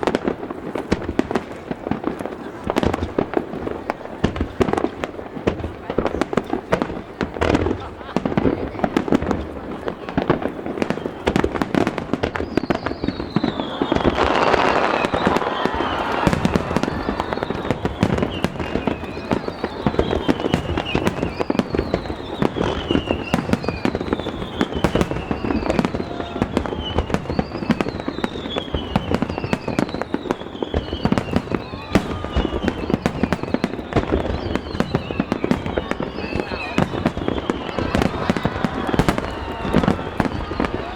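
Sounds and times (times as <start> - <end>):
fireworks bursts and bangs: 0.0 - 40.9
high whistle falling in pitch: 12.6 - 28.7.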